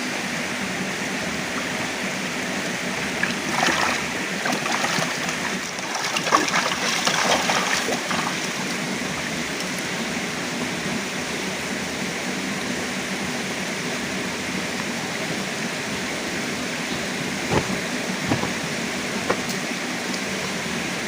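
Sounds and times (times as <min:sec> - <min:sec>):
water rushing: 0:00.8 - 0:10.0, 0:14.9 - 0:21.0
taps and spatters: 0:19.3 - 0:19.6.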